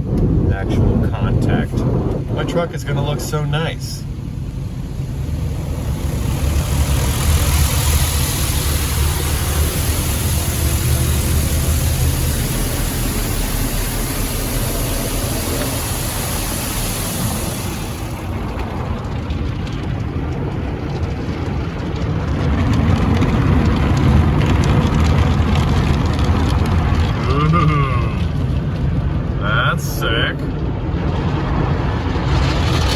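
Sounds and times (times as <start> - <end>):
car wash equipment rumble: 0.0 - 32.9
water spray hissing: 1.8 - 18.6.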